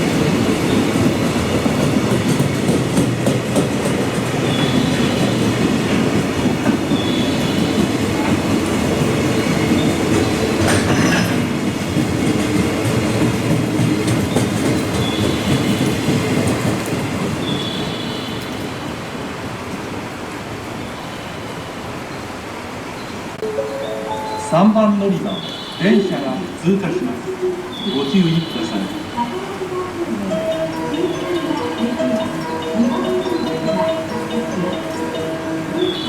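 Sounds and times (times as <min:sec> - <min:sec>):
train wheels clattering over rail joints: 0:00.0 - 0:18.7
train running rumble: 0:00.0 - 0:20.6, 0:23.4 - 0:36.0
train wheels squealing: 0:04.4 - 0:05.6, 0:17.4 - 0:19.0.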